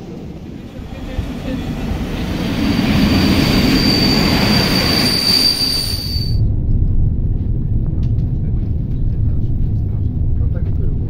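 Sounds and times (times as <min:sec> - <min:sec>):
train rumbling on rails: 0:00.0 - 0:11.0
high steady squeal: 0:00.5 - 0:06.4.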